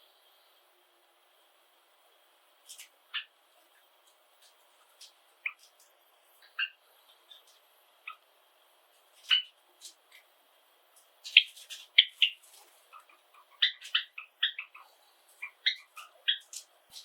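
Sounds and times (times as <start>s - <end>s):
sparrows chirping: 2.7s - 5.8s, 6.4s - 8.2s, 9.2s - 10.3s, 11.2s - 17.0s.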